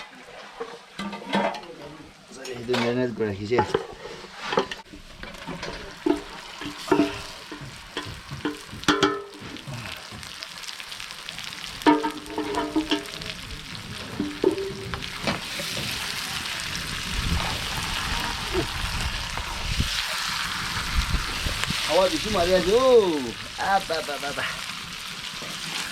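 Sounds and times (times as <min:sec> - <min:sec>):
metal utensil scraping a pot: 0:03.4 - 0:08.2, 0:11.8 - 0:13.2
food sizzling in hot oil: 0:04.3 - 0:25.9.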